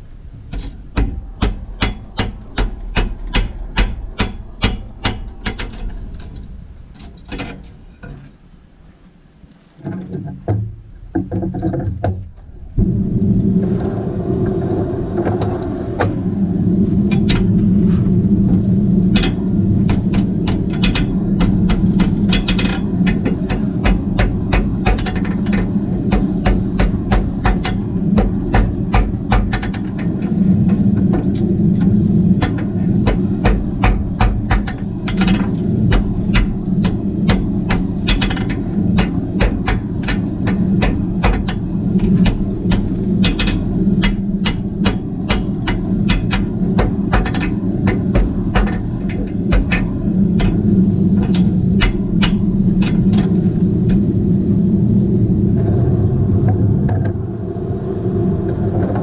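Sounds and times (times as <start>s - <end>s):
steady low hum: 0.0s - 59.0s
hammer striking metal: 0.5s - 5.9s, 19.1s - 30.3s, 32.4s - 53.4s.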